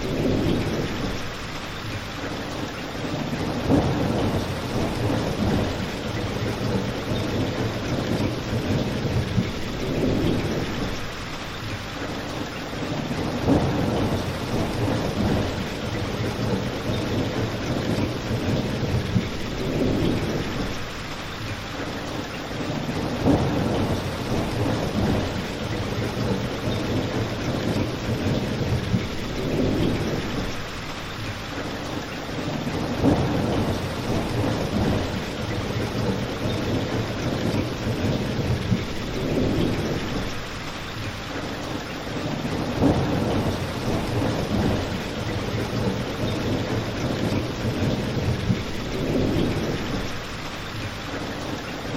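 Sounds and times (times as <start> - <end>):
rain falling: 0.0 - 51.9.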